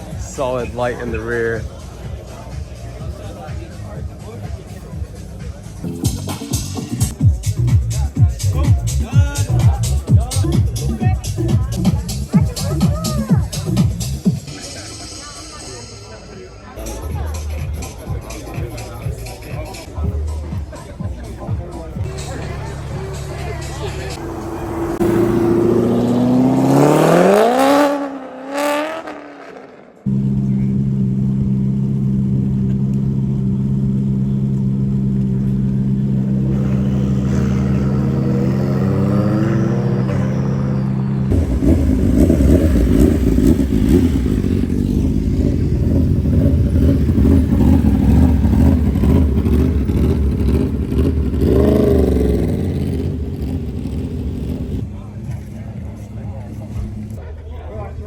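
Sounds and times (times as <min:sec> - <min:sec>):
car engine idling: 0:00.0 - 0:27.8, 0:30.1 - 0:57.3
car engine revving: 0:21.8 - 0:57.2
rough loud engine running: 0:30.1 - 0:57.2.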